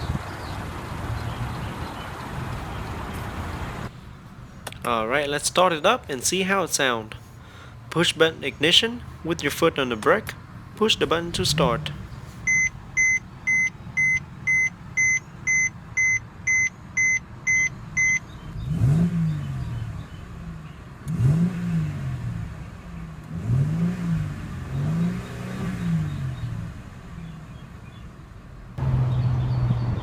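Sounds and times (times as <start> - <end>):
car engine idling and revving: 0.0 - 4.9, 10.2 - 30.0
car warning chime beeping: 4.0 - 18.3.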